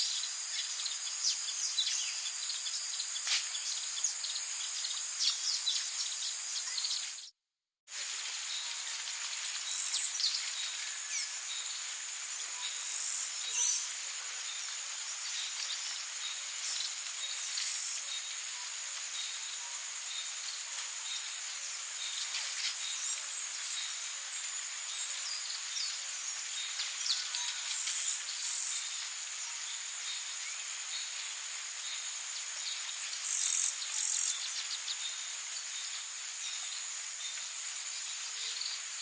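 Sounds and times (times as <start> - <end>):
rain-like hiss: 0.0 - 39.0
insects shrilling: 17.4 - 18.1, 33.2 - 34.6.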